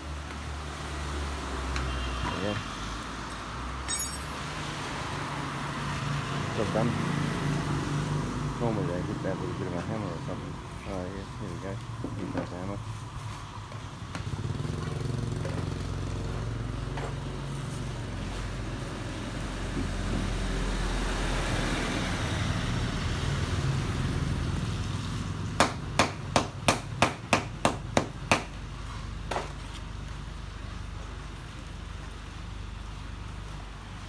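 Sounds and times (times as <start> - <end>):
traffic rumble: 0.0 - 34.0
hammer tapping rubber patch: 25.6 - 28.6.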